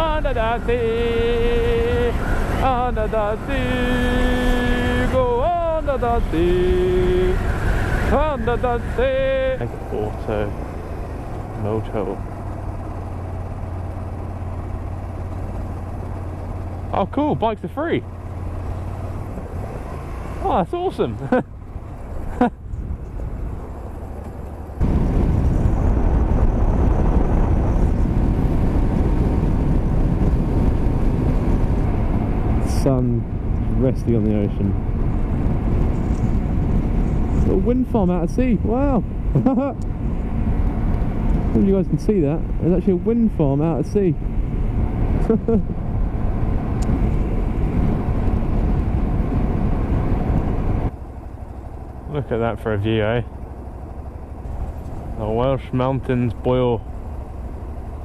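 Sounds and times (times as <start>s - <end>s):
wind rush on microphone: 0.0s - 10.5s, 21.1s - 50.9s
motorcycle riding: 0.0s - 58.0s.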